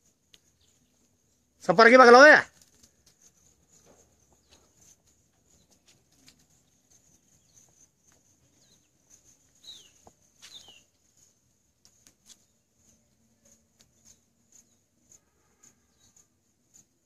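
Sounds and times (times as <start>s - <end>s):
bird chirps: 0.3s - 1.5s, 2.6s - 16.8s.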